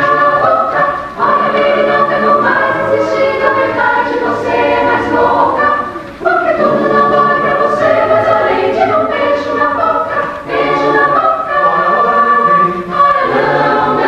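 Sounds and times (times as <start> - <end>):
choir singing a cappella: 0.0 - 14.0.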